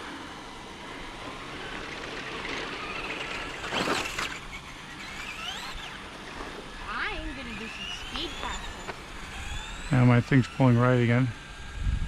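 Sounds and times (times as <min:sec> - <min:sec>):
electric motor whine: 0:00.0 - 0:12.0.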